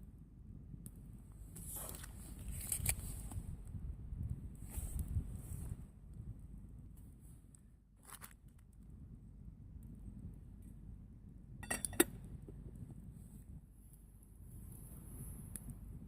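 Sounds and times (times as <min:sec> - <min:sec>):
soft rustle: 0:01.5 - 0:03.5, 0:04.6 - 0:05.9
light clinks of cookware: 0:11.6 - 0:12.2.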